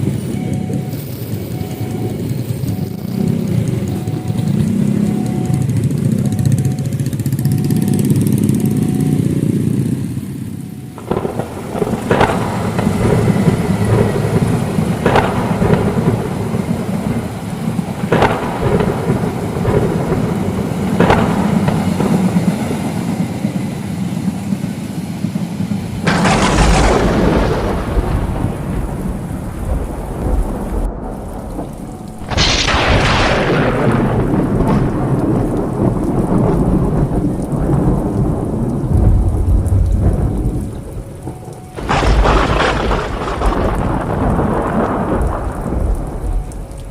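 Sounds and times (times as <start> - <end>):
heavy rain pouring: 0.0 - 46.9
thunder cracks: 10.9 - 24.4, 25.6 - 46.9
loud thunderclaps: 11.0 - 23.6, 25.6 - 46.9.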